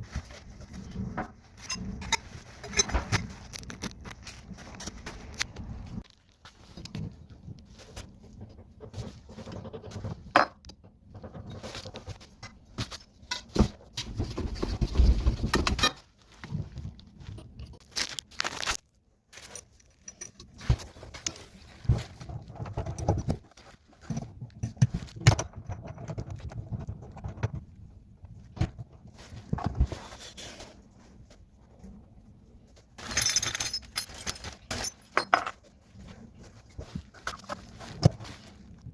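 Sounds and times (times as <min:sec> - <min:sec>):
rustling: 0:00.0 - 0:10.3, 0:11.1 - 0:25.2, 0:26.3 - 0:38.9
knocks and clinks: 0:33.0 - 0:35.6.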